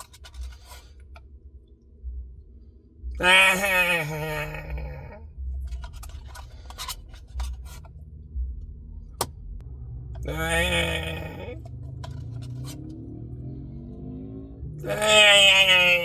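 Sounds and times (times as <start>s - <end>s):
short scrapes and clicks: 0.0s - 0.9s
steady low hum: 0.0s - 15.0s
man's wordless wavering vocal: 3.2s - 5.2s, 10.2s - 11.7s, 14.8s - 16.0s.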